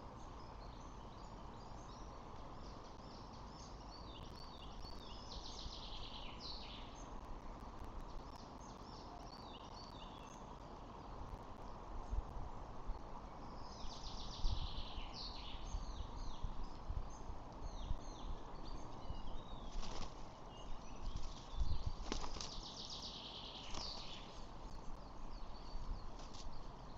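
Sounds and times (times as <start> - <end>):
birds chirping: 0.0 - 26.9
steady outdoor hiss: 0.0 - 26.9
wind rumbling on microphone: 10.1 - 23.0, 23.6 - 26.9.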